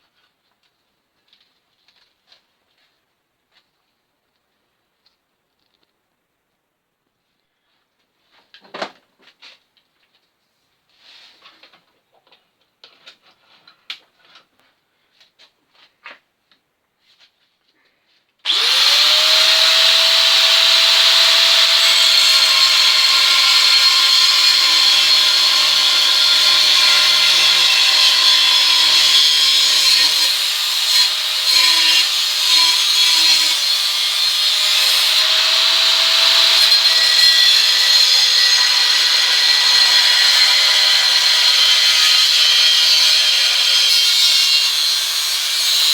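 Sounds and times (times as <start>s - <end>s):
electric power tool whining: 18.5s - 45.9s.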